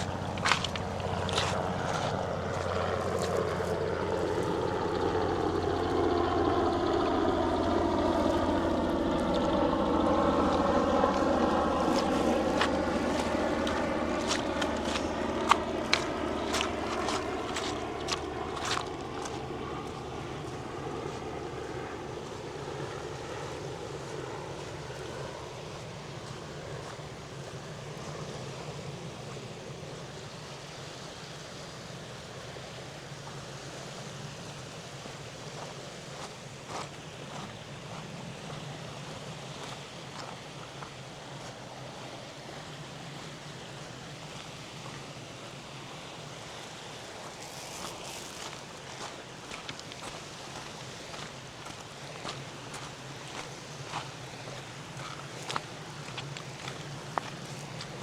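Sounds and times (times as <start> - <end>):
footsteps: 0.0 - 3.7, 10.2 - 21.4, 47.2 - 58.0
low engine drone: 0.0 - 29.1
lake waves: 0.0 - 30.4, 35.0 - 58.0
wind: 0.0 - 58.0.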